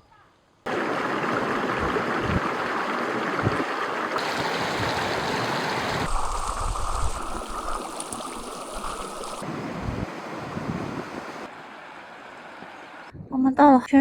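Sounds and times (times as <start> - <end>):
mountain stream rushing: 0.7 - 13.1
wind gusts on microphone: 1.6 - 11.5.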